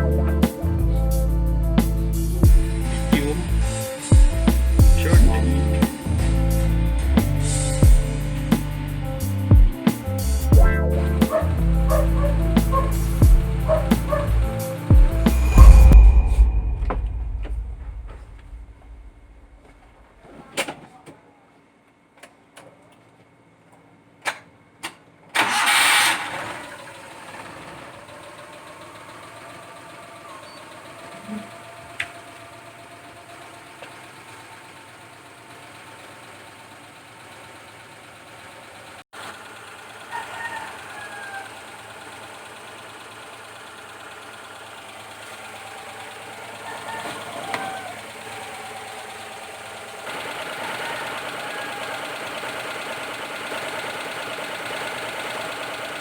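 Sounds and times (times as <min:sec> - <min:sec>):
engine starting and idling: 0:10.9 - 0:14.8, 0:25.3 - 0:56.0.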